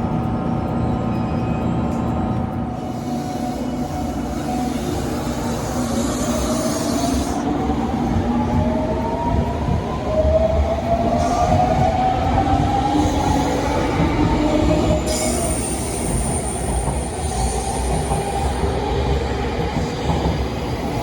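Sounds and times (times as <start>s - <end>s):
electric train rumbling: 0.0s - 21.0s
train motor whine rising: 2.8s - 19.9s
high squeal of wheels: 15.0s - 18.7s.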